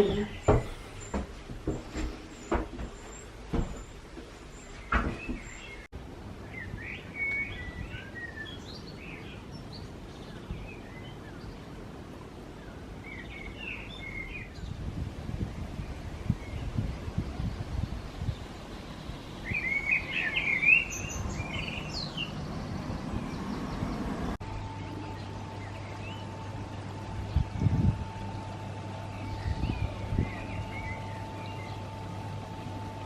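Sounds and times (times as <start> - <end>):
small birds chirping: 0.0 - 11.9, 12.5 - 14.8, 15.5 - 33.0
low outdoor rumble: 0.0 - 33.0
sharp knocks: 0.1 - 3.9, 4.9 - 5.6.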